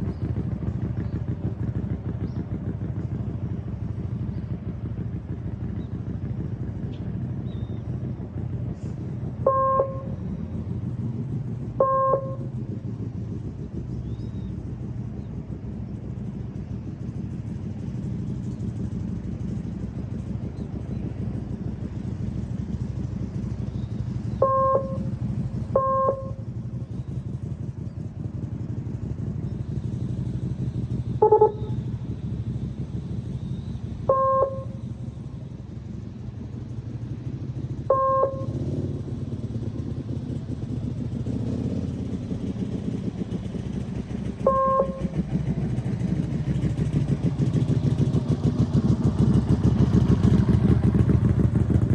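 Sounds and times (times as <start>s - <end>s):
motorcycle engine low rumble: 0.0s - 51.9s
short beeps: 24.4s - 25.0s, 31.2s - 31.8s.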